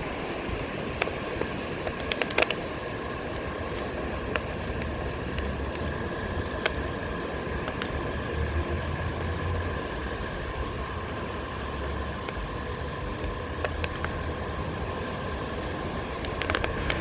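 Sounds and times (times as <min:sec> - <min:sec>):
electric motor whine: 0:00.0 - 0:17.0
wind on microphone: 0:12.1 - 0:17.0.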